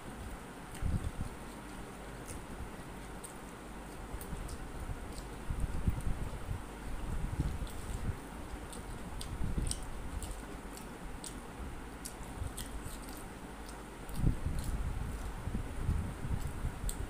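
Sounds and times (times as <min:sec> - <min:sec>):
wet chewing and mouth smacks: 0:07.4 - 0:15.4.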